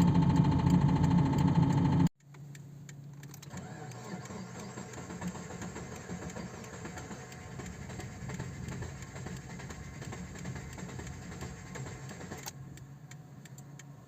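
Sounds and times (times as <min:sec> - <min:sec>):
car engine idling: 0:04.2 - 0:12.8.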